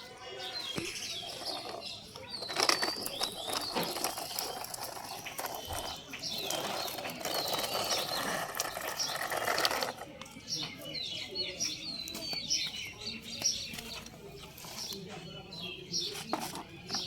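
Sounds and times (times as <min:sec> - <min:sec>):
small birds chirping: 0:00.0 - 0:17.0
sharp clicks and rattles: 0:00.8 - 0:10.4.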